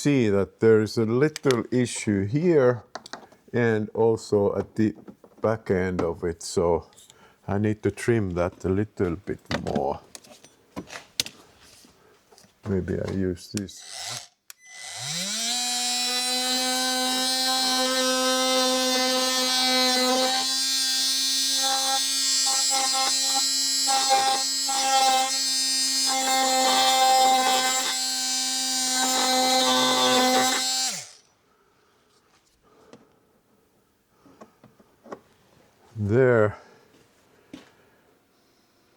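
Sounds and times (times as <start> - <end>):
handheld power tool trimming: 13.6 - 31.3.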